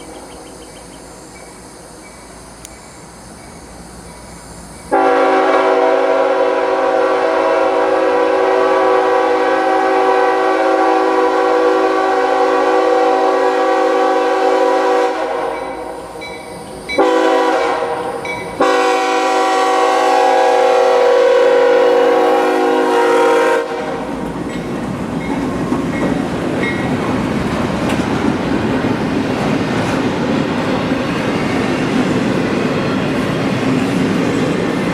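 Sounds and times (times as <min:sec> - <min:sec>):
train rumbling past: 0:00.0 - 0:34.9
locomotive air horn blasts: 0:04.9 - 0:16.0, 0:17.0 - 0:24.3
wheels clacking on rails: 0:18.2 - 0:18.7, 0:24.0 - 0:34.9.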